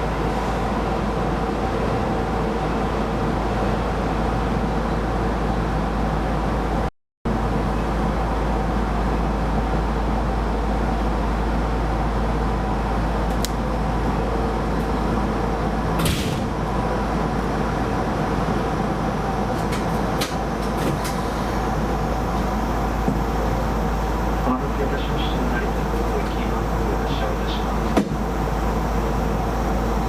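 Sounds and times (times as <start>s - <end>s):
train wheels rumbling on rail: 7.4s - 30.0s
faint hum: 21.1s - 30.0s.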